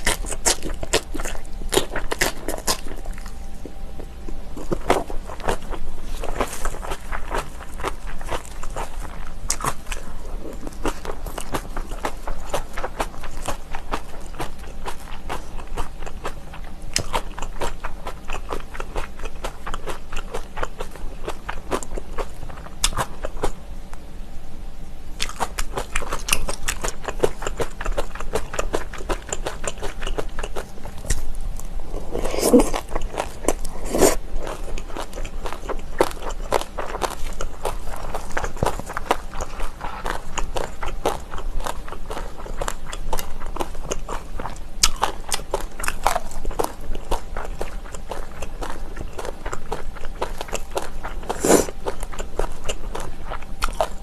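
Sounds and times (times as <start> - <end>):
person crunching and chewing food: 0.0 - 23.6, 25.2 - 54.0
loud mouth sounds: 32.0 - 32.9, 33.7 - 34.2, 51.3 - 51.7.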